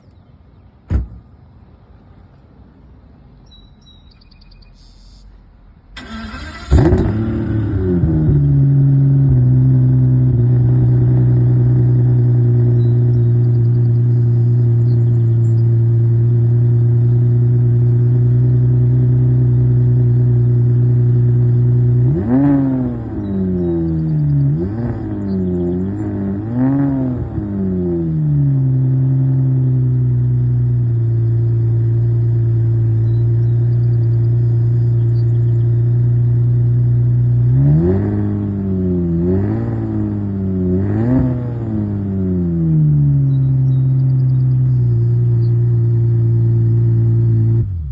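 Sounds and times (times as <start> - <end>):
car engine fast idle: 6.0 - 7.3
engine throttle revs: 6.0 - 47.9.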